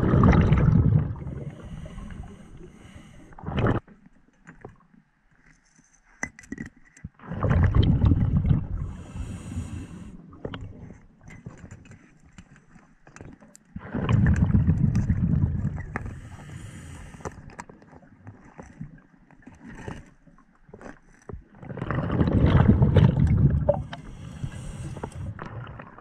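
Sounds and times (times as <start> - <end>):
exhaled bubbles rumbling: 0.0 - 2.4, 3.4 - 3.8, 7.2 - 11.0, 13.8 - 16.7, 21.5 - 26.0.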